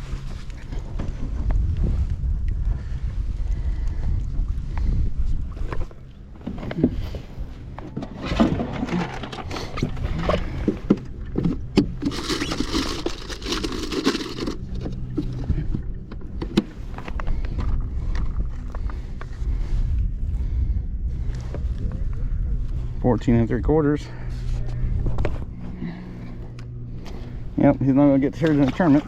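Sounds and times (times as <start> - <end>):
wind rumbling on microphone: 0.0 - 29.0
knocks and scrapes of gear: 5.6 - 18.9, 28.2 - 29.0.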